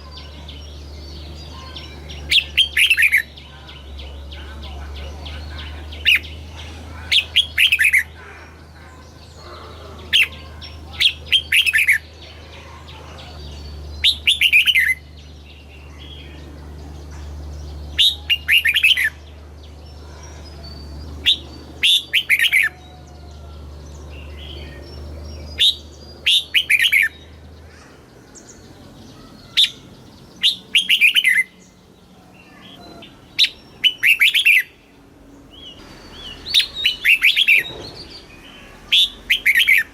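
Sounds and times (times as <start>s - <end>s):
low steady hum: 0.0s - 39.9s
bird whistling song: 13.6s - 15.6s, 20.4s - 23.1s, 24.2s - 27.3s, 30.4s - 31.7s, 32.7s - 34.8s, 35.6s - 39.9s.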